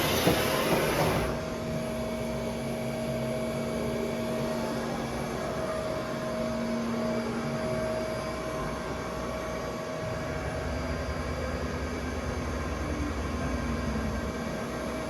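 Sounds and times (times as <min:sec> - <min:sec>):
machine hum with whine: 0:00.0 - 0:15.0.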